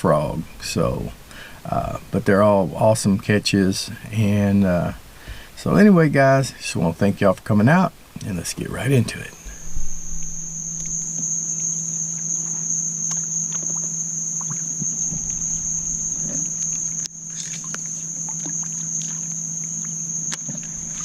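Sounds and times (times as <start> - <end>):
crickets droning: 0.0 - 21.0
low steady hum: 0.0 - 21.0
small water sounds: 8.0 - 21.0
faint ticks: 9.3 - 21.0.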